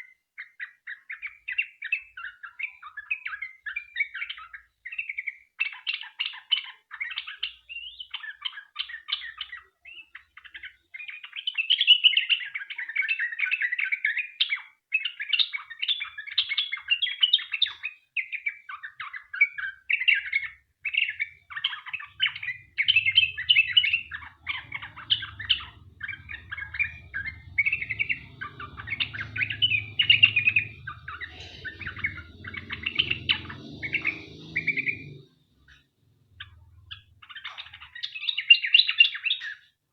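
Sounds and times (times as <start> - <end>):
bird singing chattering phrases: 15.7 - 39.7
faint low hum: 20.9 - 38.5.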